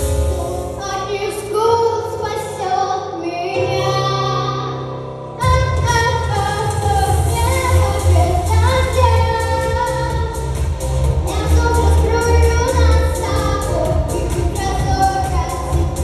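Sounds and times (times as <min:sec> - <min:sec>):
girl singing pop song: 0:00.0 - 0:16.0
backing track with bass and drums: 0:05.4 - 0:16.0.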